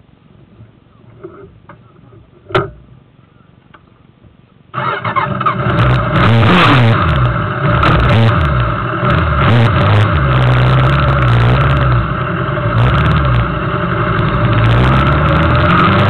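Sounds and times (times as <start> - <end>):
motorcycle engine running: 5.2 - 16.0.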